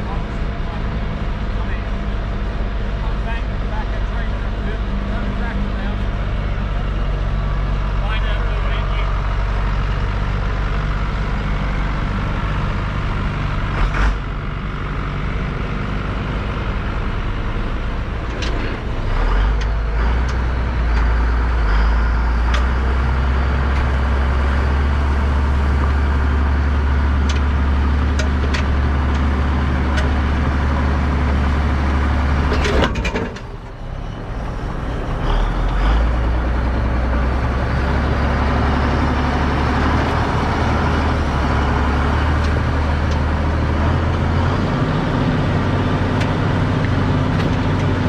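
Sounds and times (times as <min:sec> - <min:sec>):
tractor diesel engine running: 0:00.0 - 0:48.0
clanks and knocks: 0:32.4 - 0:33.8.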